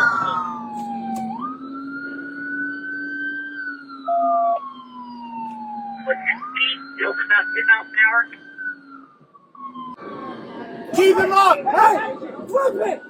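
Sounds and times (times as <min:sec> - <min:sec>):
police siren wailing: 0:00.0 - 0:13.0.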